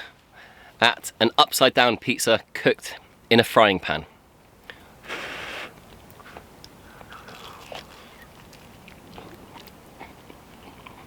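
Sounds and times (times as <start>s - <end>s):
person chewing crispy pizza: 5.8s - 11.0s.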